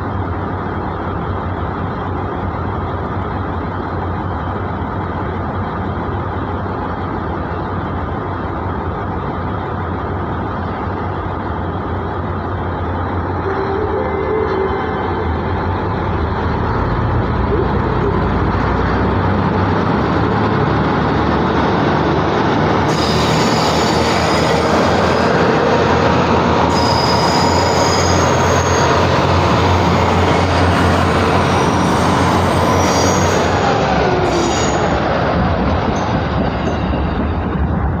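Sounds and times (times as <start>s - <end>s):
diesel engines droning: 0.0s - 38.0s
train wheels squealing: 22.9s - 25.5s, 26.7s - 35.2s.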